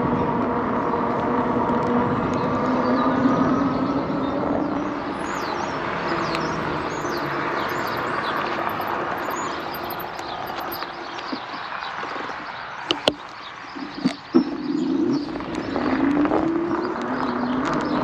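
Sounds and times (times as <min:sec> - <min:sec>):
electric bike rolling: 0:00.2 - 0:13.7
bird chirps: 0:05.1 - 0:12.0.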